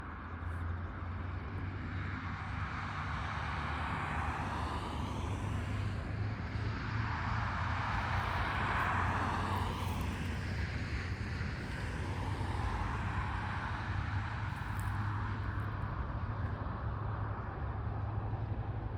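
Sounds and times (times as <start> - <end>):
diesel locomotive engine drone: 0.0 - 18.9.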